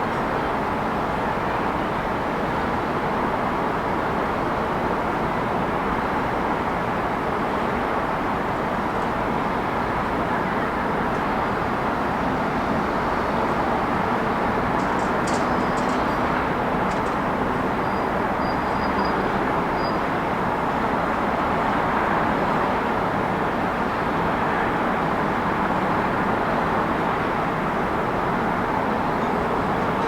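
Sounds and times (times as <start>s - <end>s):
traffic rush: 9.6s - 18.4s.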